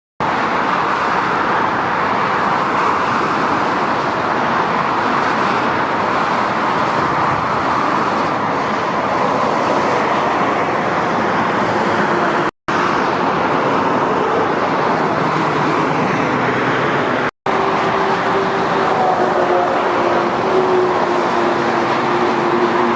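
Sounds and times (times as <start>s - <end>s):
fast motorway traffic roar: 0.2s - 22.9s
trucks and cars passing: 0.2s - 22.9s.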